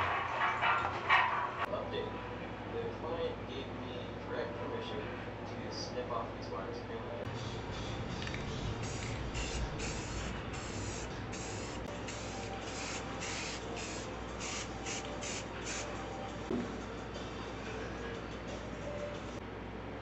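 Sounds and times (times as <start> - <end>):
spray paint can hissing: 8.3 - 15.9.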